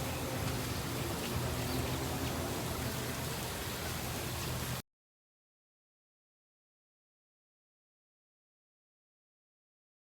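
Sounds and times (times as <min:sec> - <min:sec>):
outdoor background hiss: 0:00.0 - 0:04.8.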